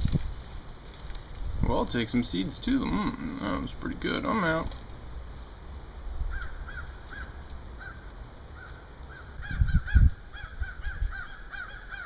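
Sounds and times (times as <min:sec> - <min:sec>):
wild birds calling: 0:02.3 - 0:04.8, 0:06.1 - 0:12.0.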